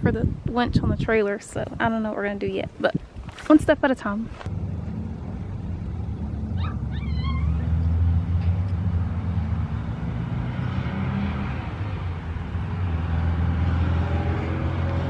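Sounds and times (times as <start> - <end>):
vehicle engine idling: 4.3 - 9.2.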